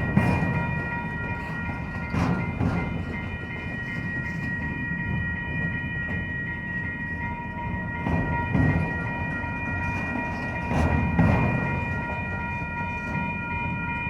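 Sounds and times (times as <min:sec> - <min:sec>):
train wheel clacks: 0:00.0 - 0:06.9, 0:08.0 - 0:13.3
train wheels rumbling on rail: 0:00.0 - 0:14.0.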